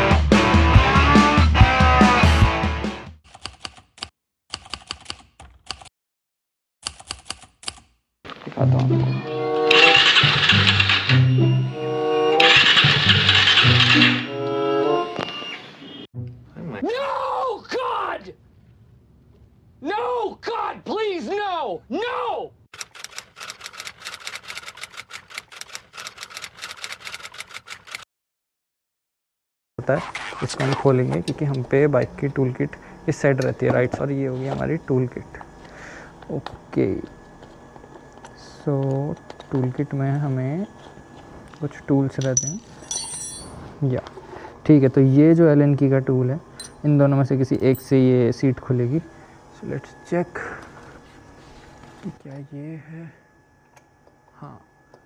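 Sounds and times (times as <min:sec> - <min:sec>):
music with low bass notes: 0:00.0 - 0:03.0.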